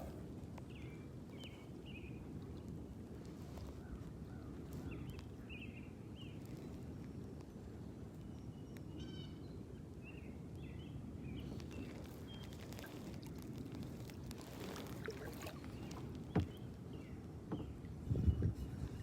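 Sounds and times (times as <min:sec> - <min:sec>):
small birds chirping: 0:10.1 - 0:19.0.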